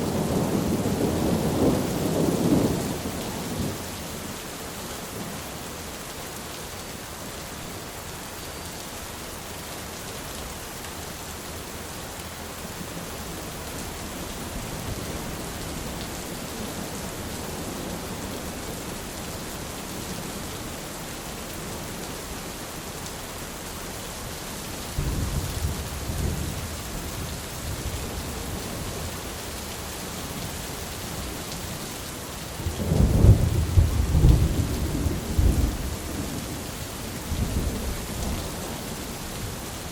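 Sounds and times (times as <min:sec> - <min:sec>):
rumbles of thunder: 0:00.0 - 0:04.1, 0:25.0 - 0:28.9, 0:32.6 - 0:39.7
rain falling: 0:00.0 - 0:39.9.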